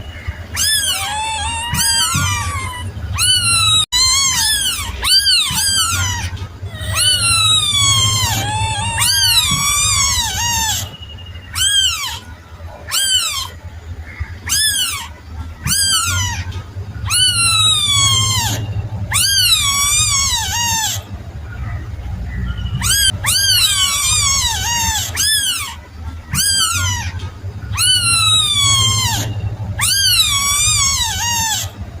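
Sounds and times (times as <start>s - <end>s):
kitten mewing: 0.6s - 10.9s.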